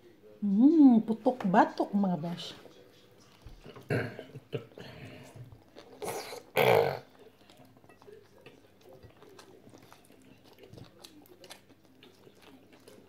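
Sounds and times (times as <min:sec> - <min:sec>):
person chewing crispy food: 0:05.6 - 0:13.0.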